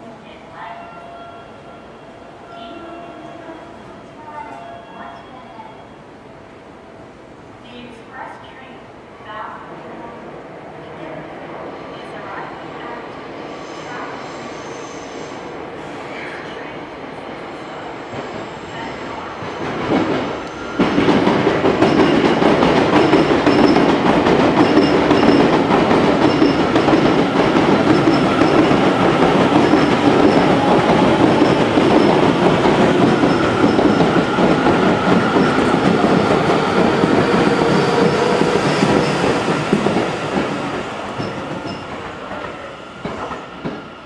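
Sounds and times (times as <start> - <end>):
electric train whine: 17.5 - 44.0.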